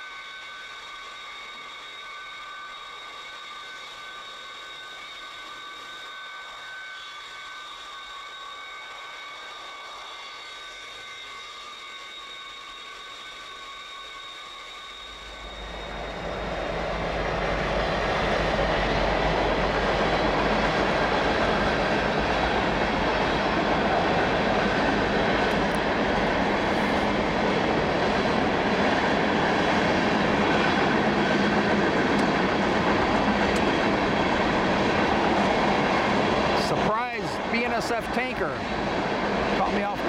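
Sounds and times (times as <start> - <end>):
freight train wheels rumbling: 15.1 - 40.0.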